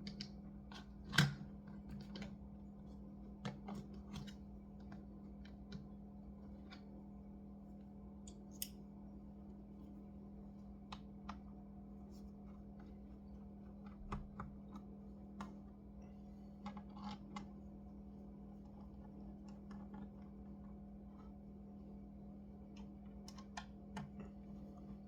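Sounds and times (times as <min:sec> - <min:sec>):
steady low hum: 0:00.0 - 0:25.0
clicks and taps handling a laptop: 0:03.4 - 0:05.9, 0:22.7 - 0:24.8.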